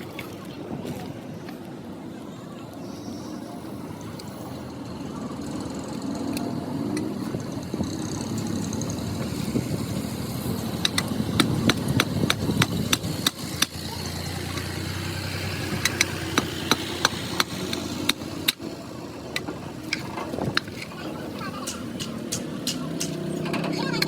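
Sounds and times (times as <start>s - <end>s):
hammer striking metal: 21.6s - 23.3s.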